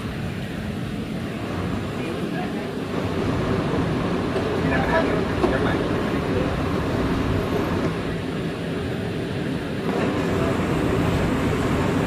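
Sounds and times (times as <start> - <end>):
subway car rumble: 0.0 - 12.0.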